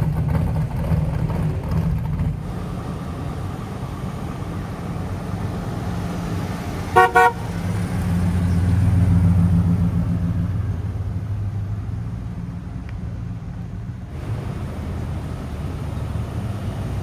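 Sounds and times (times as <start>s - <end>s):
car engine pulling away: 0.0s - 17.0s
car horn tooting: 6.9s - 7.6s.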